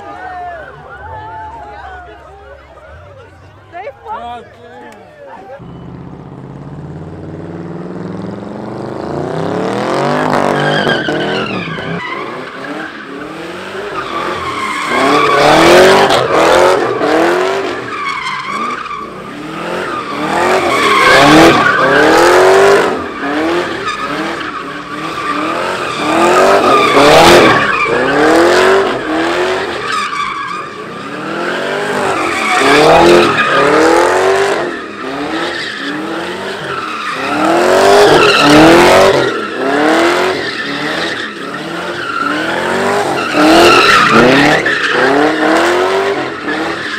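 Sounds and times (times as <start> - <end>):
car engine revving: 5.6 - 46.9
tyres squealing: 17.7 - 46.9.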